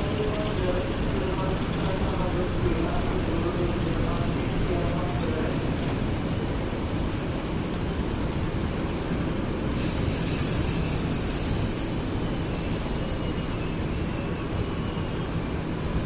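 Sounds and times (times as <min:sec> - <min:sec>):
train low rumble: 0:00.0 - 0:16.0
train wheels squealing on rails: 0:08.9 - 0:16.0.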